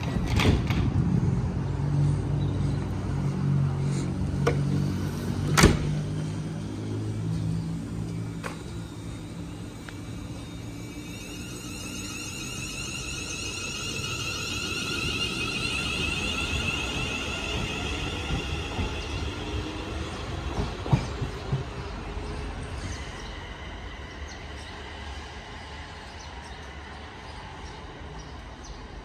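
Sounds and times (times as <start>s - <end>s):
electric train motor whine: 7.4s - 19.2s.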